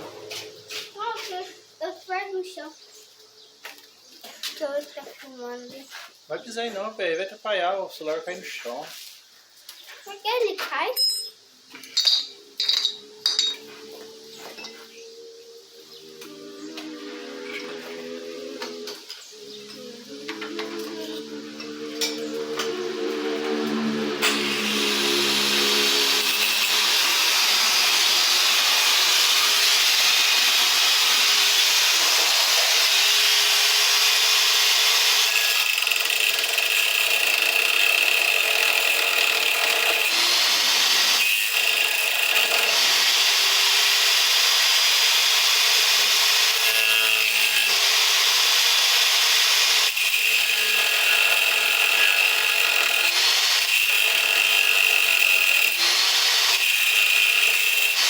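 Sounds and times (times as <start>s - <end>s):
power tool grinding: 0.0s - 1.5s, 15.8s - 58.0s.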